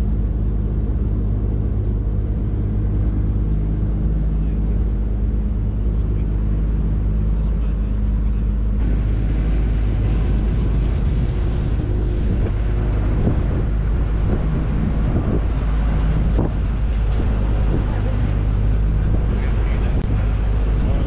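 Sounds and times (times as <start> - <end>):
noisy rush: 0.0 - 21.0
vehicle engine humming: 0.0 - 21.0.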